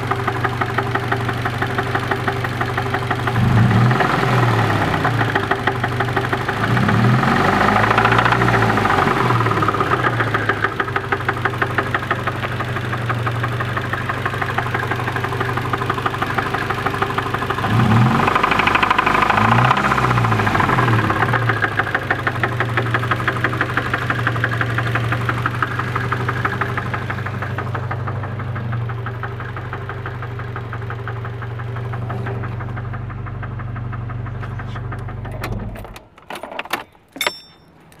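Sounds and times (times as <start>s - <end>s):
car engine knocking and revving: 0.0s - 35.9s.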